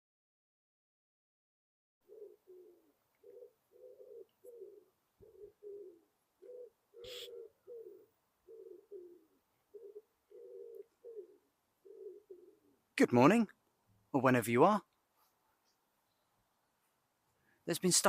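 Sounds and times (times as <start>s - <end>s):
pigeon cooing: 2.0s - 12.8s.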